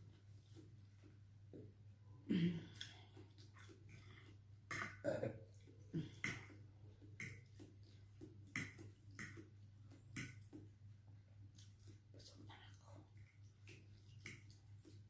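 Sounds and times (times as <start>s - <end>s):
person chewing and slurping noodles: 2.7s - 10.6s.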